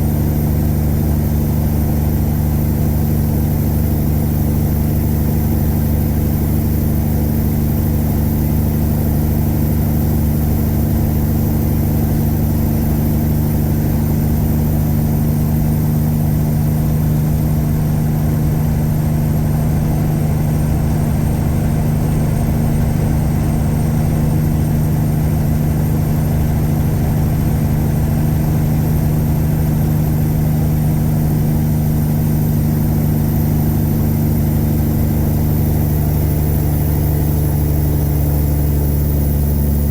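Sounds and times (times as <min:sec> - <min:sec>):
truck diesel engine droning: 0:30.7 - 0:39.9.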